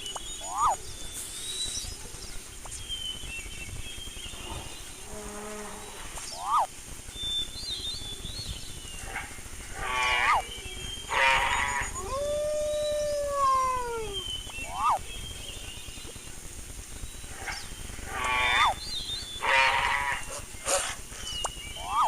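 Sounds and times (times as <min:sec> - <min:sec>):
animal chirps sweeping up and down: 0:00.0 - 0:01.8, 0:06.3 - 0:06.7, 0:10.0 - 0:15.4, 0:21.2 - 0:22.0
harsh bleating calls: 0:11.1 - 0:12.2, 0:19.4 - 0:20.4
long rising and falling call: 0:11.1 - 0:15.1.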